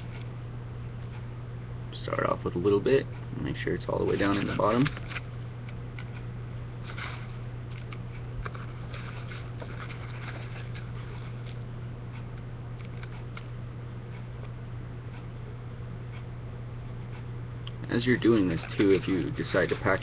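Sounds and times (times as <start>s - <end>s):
steady low hum: 0.0s - 20.0s
tobacco crackling and rustling: 3.9s - 6.1s, 6.8s - 11.7s, 17.8s - 20.0s.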